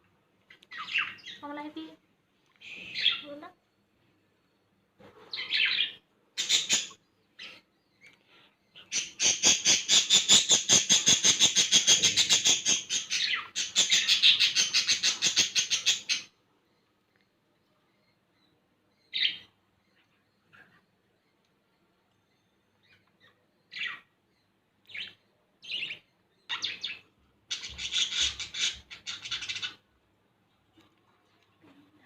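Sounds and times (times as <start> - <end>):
baby lovebird chirping: 5.3 - 7.0, 8.8 - 16.3, 24.9 - 29.8.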